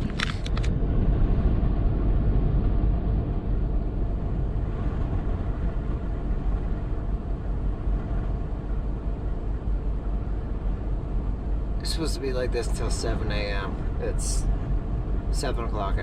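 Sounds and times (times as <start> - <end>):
wind buffeting truck cab: 0.0 - 11.9.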